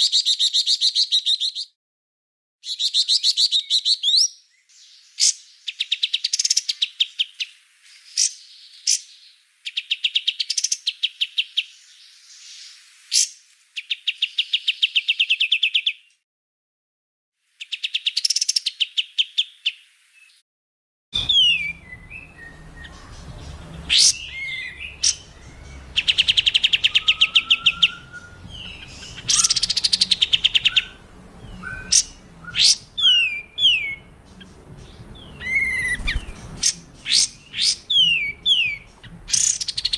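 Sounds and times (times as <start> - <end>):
bird high down-slurred whistles: 21.2 - 34.1
bird rattling trills: 21.2 - 39.9.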